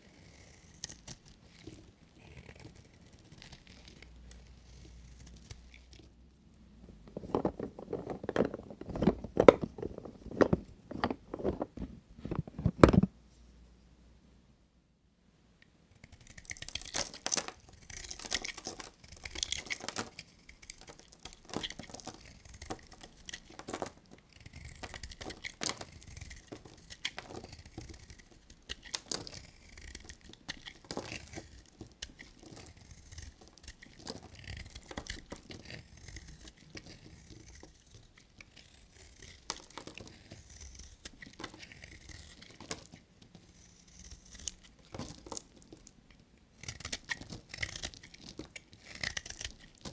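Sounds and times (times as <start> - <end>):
knife cutting dry soap: 16.0 - 46.0, 46.6 - 49.9.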